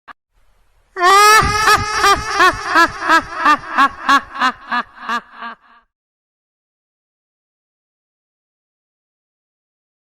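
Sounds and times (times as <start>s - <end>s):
high-pitched cackling laugh: 1.0s - 5.9s.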